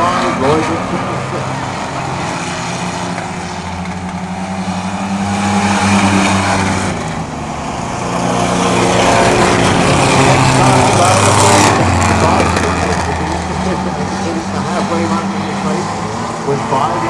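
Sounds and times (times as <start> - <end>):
racing trucks engines at speed: 0.0 - 17.0.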